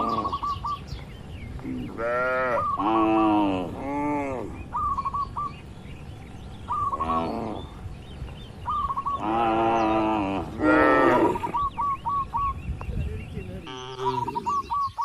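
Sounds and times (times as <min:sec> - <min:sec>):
bird chirping: 0:00.0 - 0:15.0
cattle mooing: 0:01.8 - 0:04.6, 0:06.9 - 0:07.8, 0:09.1 - 0:11.6, 0:13.6 - 0:14.6.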